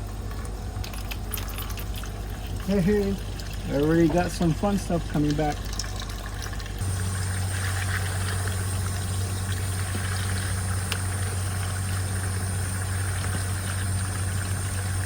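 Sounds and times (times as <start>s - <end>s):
engine and pump humming: 0.0s - 15.0s
water hissing: 6.8s - 15.0s.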